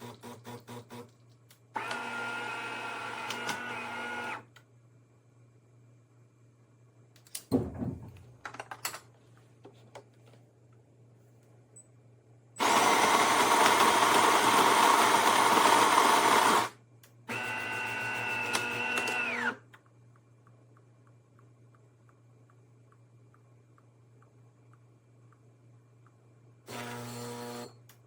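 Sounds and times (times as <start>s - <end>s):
grinder grinding beans: 12.6s - 16.7s.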